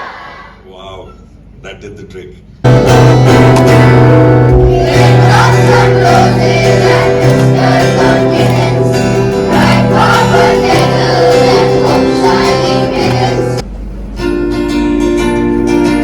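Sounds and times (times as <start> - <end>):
guitar: 2.7 - 16.0
people singing: 3.4 - 13.6.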